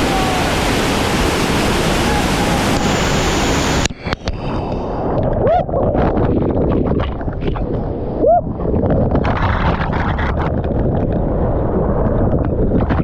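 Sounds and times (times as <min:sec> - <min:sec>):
waterfall roaring: 0:00.0 - 0:03.9
rush of water: 0:00.0 - 0:05.3.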